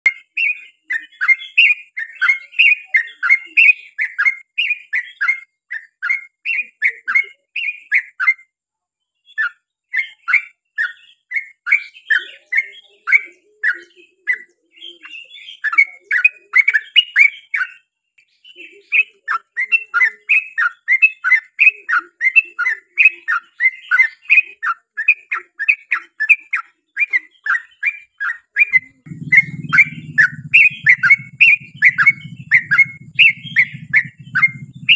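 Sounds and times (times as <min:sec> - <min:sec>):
bird chattering song: 0:00.0 - 0:08.5, 0:09.2 - 0:34.9
low hum: 0:29.0 - 0:34.9.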